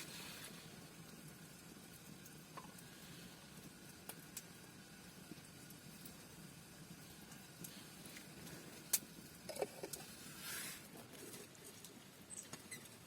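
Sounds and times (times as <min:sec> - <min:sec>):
low steady hiss: 0:00.0 - 0:13.0
rustling scrape: 0:10.1 - 0:11.5.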